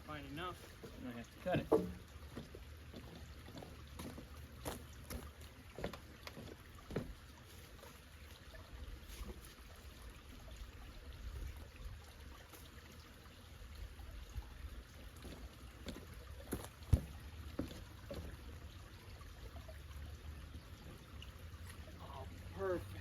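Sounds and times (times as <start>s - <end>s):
wooden boards knocking: 1.5s - 2.1s.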